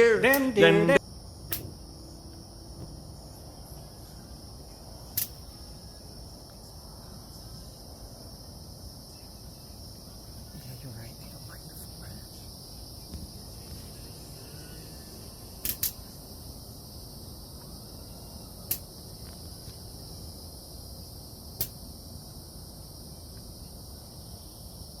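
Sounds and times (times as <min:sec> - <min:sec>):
insects trilling: 0:00.0 - 0:25.0
sharp clicks: 0:15.6 - 0:16.0.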